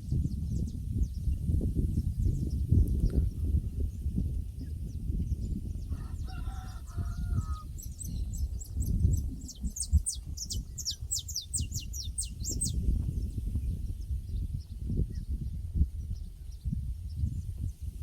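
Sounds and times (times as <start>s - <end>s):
rooster crowing: 5.9s - 7.7s
small bird high chirps: 6.2s - 13.4s.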